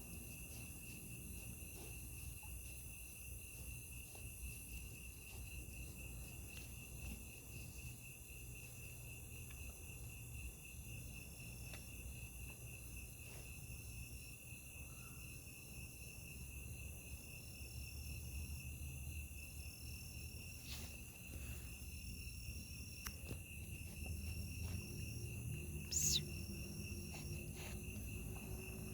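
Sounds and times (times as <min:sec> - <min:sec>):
crickets trilling: 0:00.0 - 0:28.9
high whistling chirp: 0:25.8 - 0:26.6.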